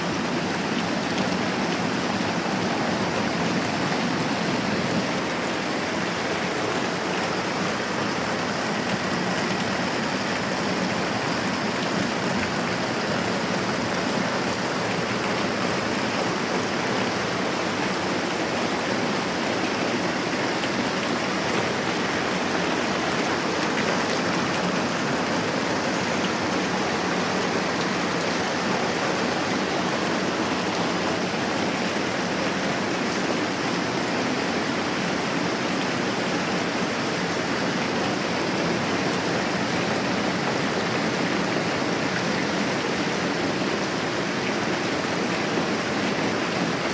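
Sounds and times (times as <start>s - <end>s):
rain falling: 0.0s - 46.9s.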